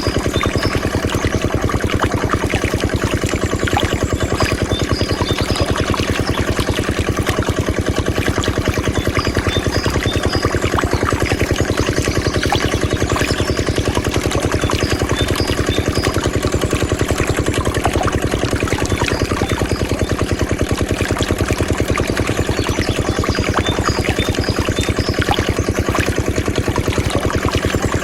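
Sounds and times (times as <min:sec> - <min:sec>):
diesel water pump chugging: 0:00.0 - 0:28.0.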